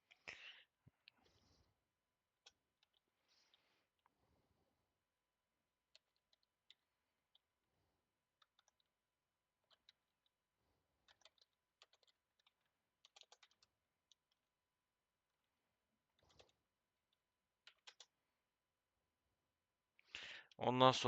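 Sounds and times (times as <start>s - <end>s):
keyboard typing: 2.4s - 3.6s, 5.9s - 7.4s, 8.4s - 8.9s, 9.6s - 10.3s, 11.0s - 14.4s, 16.1s - 18.2s.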